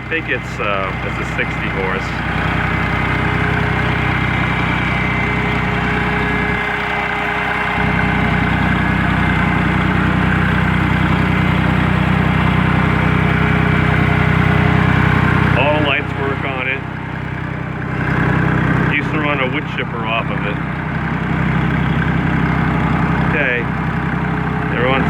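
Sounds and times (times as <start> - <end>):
tractor engine idling: 0.0 - 25.0.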